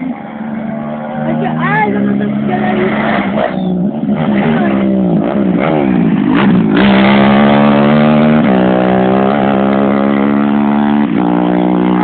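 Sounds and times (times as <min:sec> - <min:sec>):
race vehicle engine revving high: 0:00.0 - 0:12.0.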